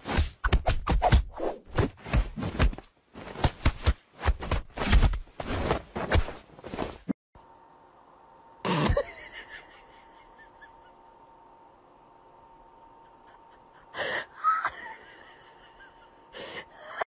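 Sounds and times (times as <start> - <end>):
faint steady hum: 7.4 - 17.0.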